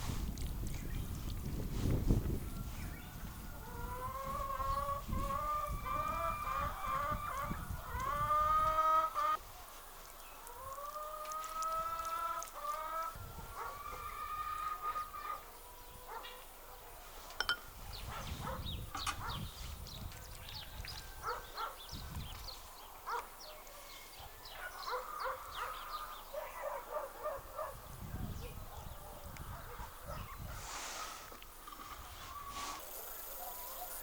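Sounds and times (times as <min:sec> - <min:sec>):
chickens calling: 0:02.4 - 0:09.4, 0:10.4 - 0:16.8, 0:20.7 - 0:27.7.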